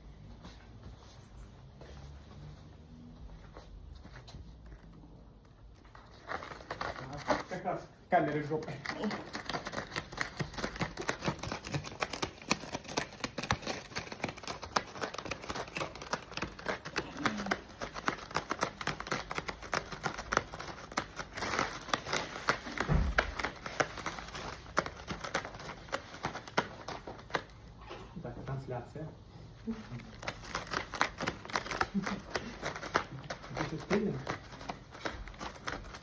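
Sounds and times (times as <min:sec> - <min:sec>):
cat scratching a post: 0:08.8 - 0:27.6, 0:30.1 - 0:36.0.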